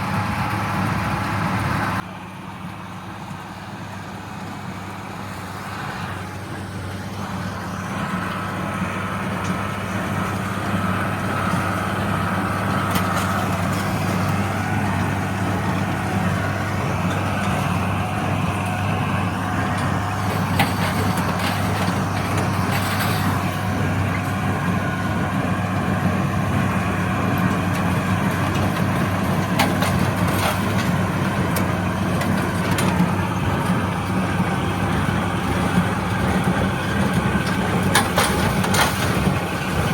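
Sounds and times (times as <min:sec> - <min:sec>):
diesel tractor running under load: 0:00.0 - 0:39.9
metallic clanks from baler: 0:09.4 - 0:24.7, 0:27.4 - 0:39.9.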